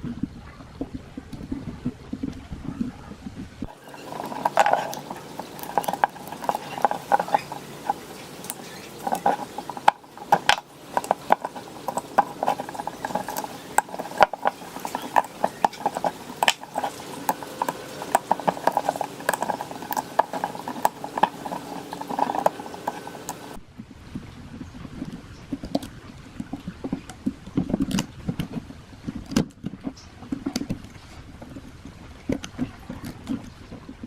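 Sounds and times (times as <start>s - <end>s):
clicking tapping and scraping of fan parts: 3.6s - 23.6s, 25.0s - 33.9s.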